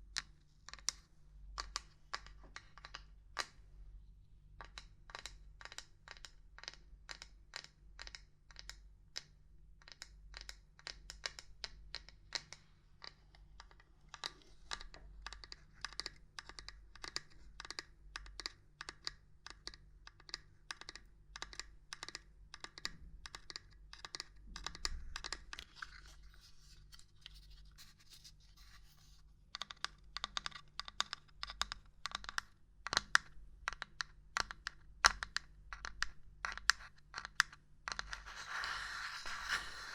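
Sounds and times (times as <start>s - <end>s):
soft scratching: 25.6s - 29.4s, 38.0s - 39.9s.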